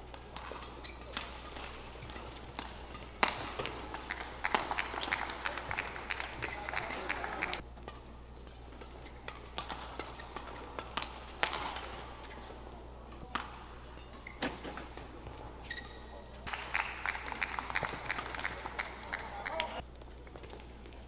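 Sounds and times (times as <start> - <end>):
crowd clapping: 3.9 - 7.6, 16.5 - 19.8
shoe squeak on court: 15.6 - 16.3.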